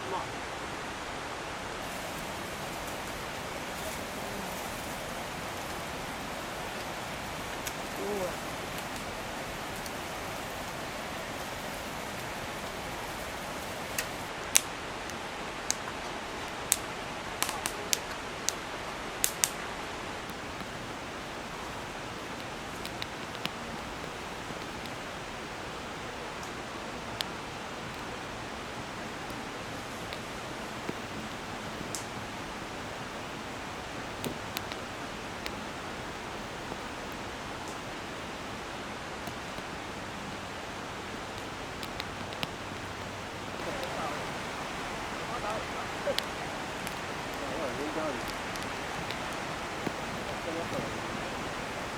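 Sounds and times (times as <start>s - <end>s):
mountain stream rushing: 20.3s - 51.9s
sharp clicks: 20.3s - 51.9s.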